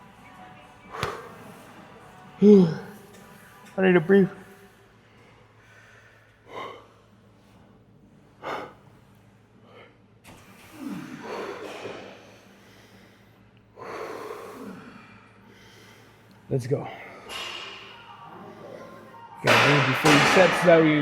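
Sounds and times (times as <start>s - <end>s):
man breathing heavily: 5.5s - 7.6s, 8.3s - 10.0s, 10.7s - 17.5s.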